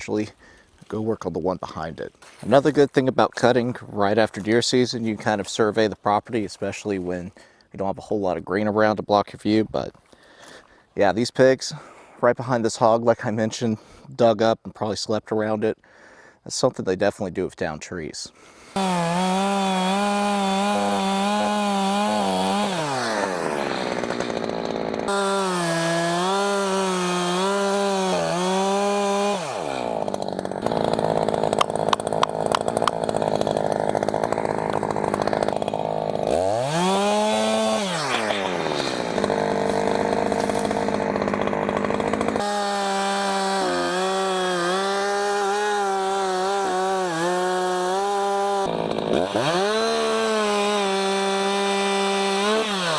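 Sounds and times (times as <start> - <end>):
chainsaw cutting wood: 18.6 - 52.9.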